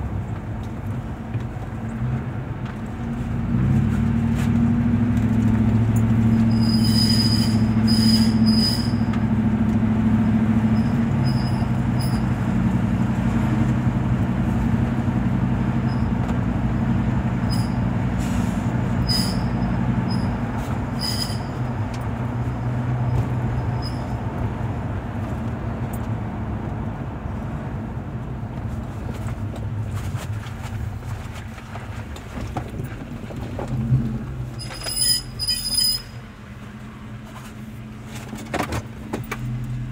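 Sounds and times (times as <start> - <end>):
high-pitched metallic screech: 6.4 - 9.1, 19.0 - 20.3, 20.9 - 21.6, 34.6 - 36.2.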